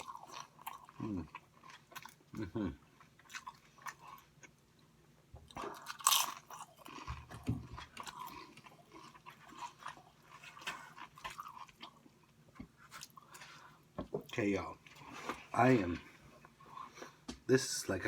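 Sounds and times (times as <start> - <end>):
person chewing crunchy food: 0.0 - 4.6, 5.4 - 13.9.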